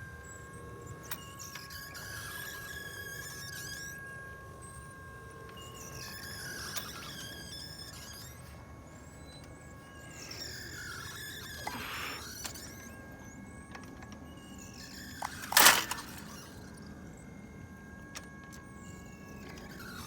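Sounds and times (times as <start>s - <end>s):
clay thrower squeaking and squealing: 5.7s - 17.0s.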